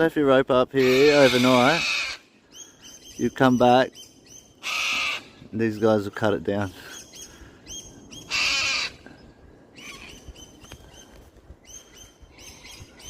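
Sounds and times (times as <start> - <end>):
birds high chirps: 0.6 - 13.0
bird harsh screech: 0.8 - 2.3, 4.6 - 5.4, 8.2 - 9.0, 9.8 - 10.2.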